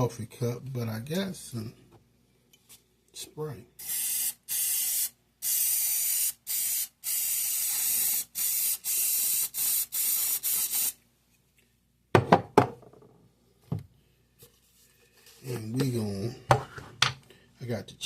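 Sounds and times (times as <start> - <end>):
aerosol spray hissing: 3.8 - 11.0.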